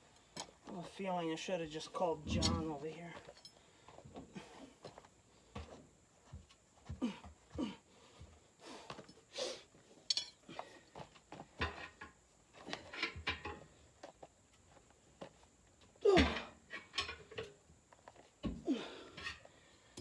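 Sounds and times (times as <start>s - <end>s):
metallic clinks and scrapes: 2.3s - 3.6s, 10.0s - 10.4s.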